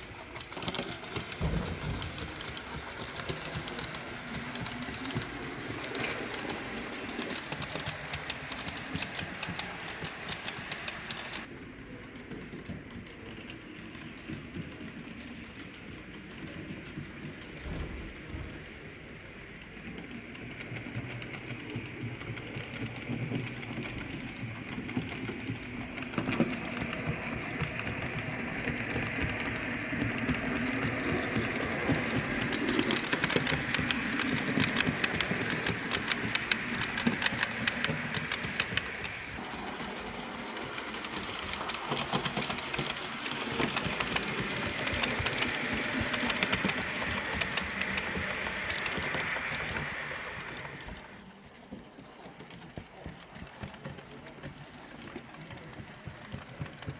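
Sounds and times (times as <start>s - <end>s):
fast clicks: 0.0s - 11.5s, 20.6s - 51.2s
model train motor whirring: 0.0s - 11.5s, 21.1s - 51.2s
wheels rattling on track: 0.0s - 56.9s.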